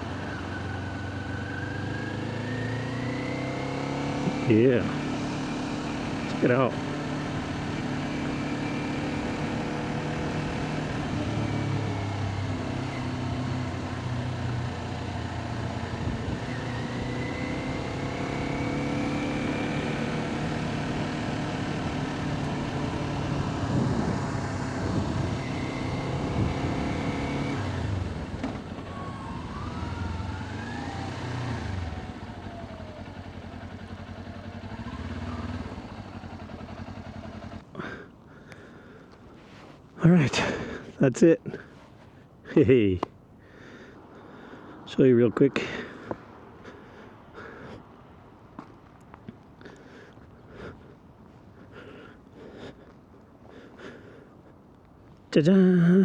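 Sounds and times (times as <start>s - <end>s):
motorcycle engine revving: 0.0s - 38.6s
road noise: 0.0s - 56.0s.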